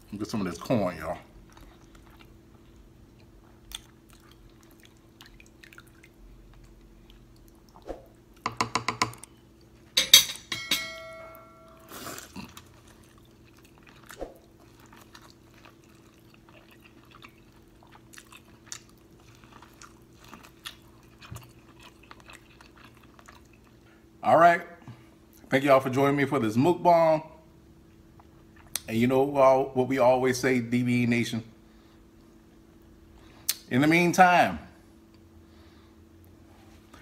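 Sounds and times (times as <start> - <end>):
wet chewing and lip smacking: 1.4 - 8.4, 11.9 - 23.8.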